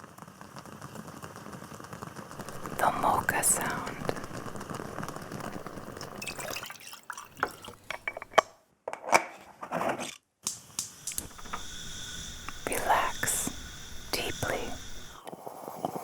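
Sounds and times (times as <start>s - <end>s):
coffee maker gurgling and sputtering: 2.3s - 8.4s, 11.2s - 16.0s.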